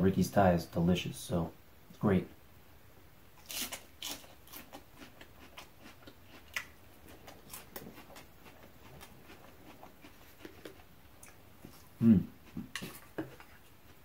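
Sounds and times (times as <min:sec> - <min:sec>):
chewing salad: 0:03.4 - 0:14.0.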